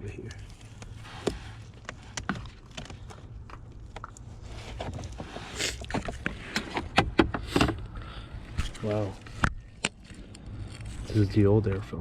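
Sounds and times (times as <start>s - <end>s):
plastic scraping slide: 4.4s - 7.9s.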